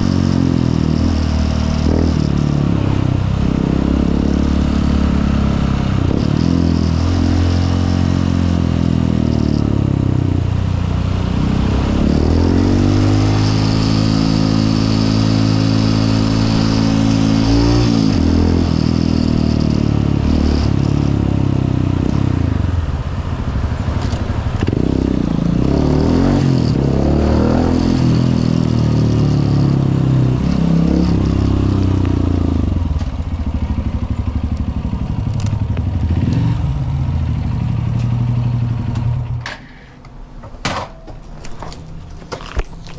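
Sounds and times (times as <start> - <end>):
motorcycle engine revving: 0.0 - 39.4.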